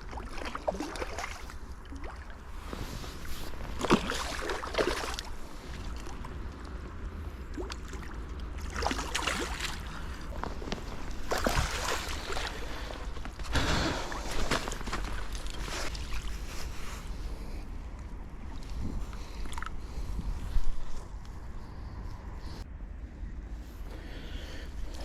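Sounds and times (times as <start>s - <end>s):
river water splashing: 0.0s - 2.7s, 3.3s - 6.8s, 7.5s - 16.4s.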